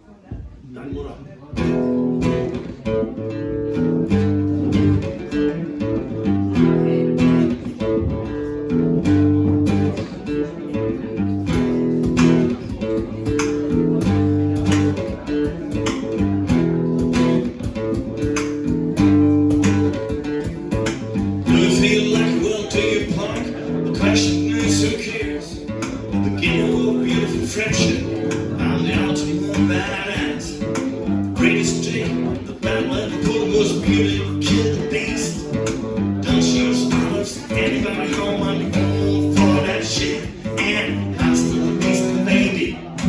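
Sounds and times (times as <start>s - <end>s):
rock guitar chords: 1.6s - 43.0s
drum beat: 11.6s - 43.0s.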